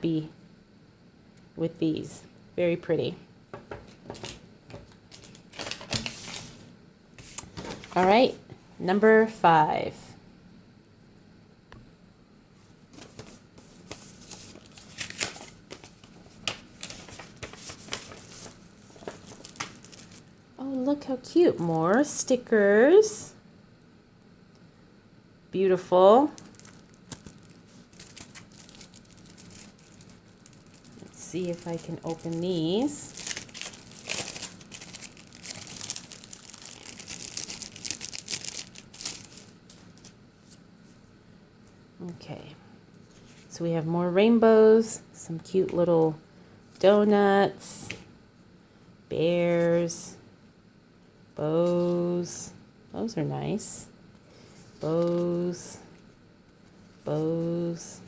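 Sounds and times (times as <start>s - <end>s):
wrapping paper crinkling and tearing: 4.1s - 4.4s, 5.0s - 8.0s, 13.1s - 20.3s, 26.3s - 40.6s, 54.5s - 55.7s.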